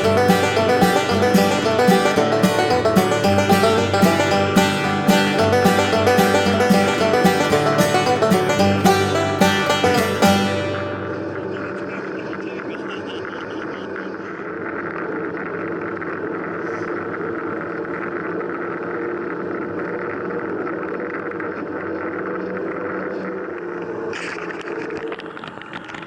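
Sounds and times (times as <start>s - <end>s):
bicycle tyre road noise: 14.7s - 26.0s.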